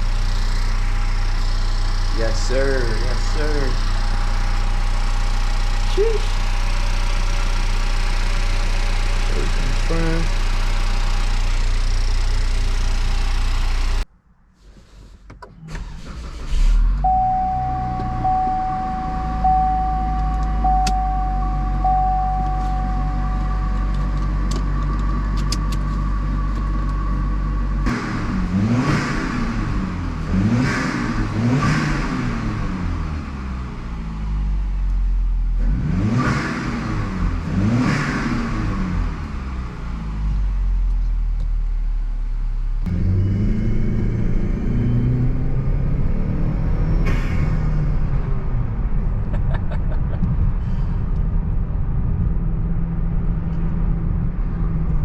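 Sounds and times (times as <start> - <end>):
car engine revving: 0.0 - 14.0, 15.7 - 34.6, 35.6 - 40.6, 42.8 - 51.2
steady electronic tone: 17.0 - 24.5.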